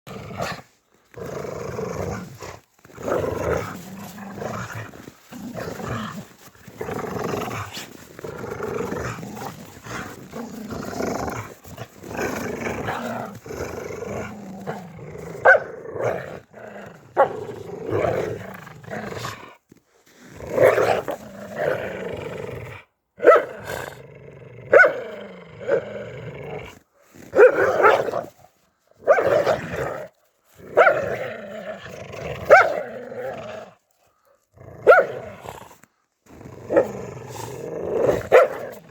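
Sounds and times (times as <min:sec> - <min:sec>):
dog growling: 0:01.1 - 0:19.1
dog barking: 0:15.4 - 0:15.7, 0:23.2 - 0:23.5, 0:24.7 - 0:25.0, 0:27.4 - 0:28.1, 0:30.8 - 0:31.1, 0:32.5 - 0:32.8, 0:34.8 - 0:35.2, 0:38.3 - 0:38.6.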